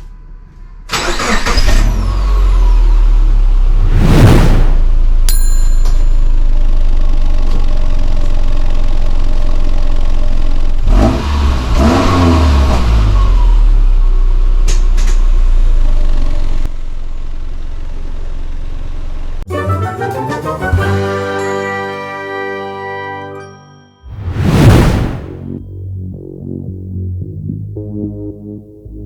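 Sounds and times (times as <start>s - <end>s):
car engine idling and revving: 0.0s - 19.5s
chime: 5.3s - 6.6s.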